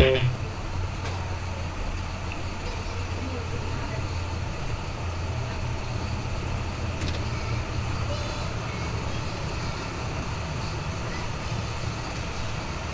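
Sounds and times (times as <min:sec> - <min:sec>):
sharp click: 0:00.0 - 0:00.4.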